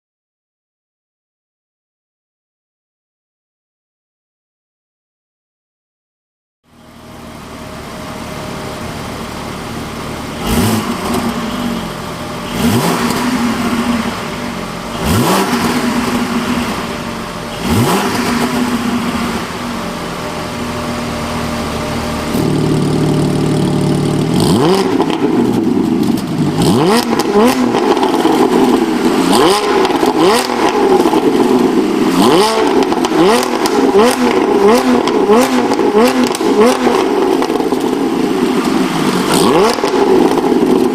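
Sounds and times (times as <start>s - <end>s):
car engine revving: 6.7s - 40.9s
exhaust crackles and pops: 21.9s - 40.9s.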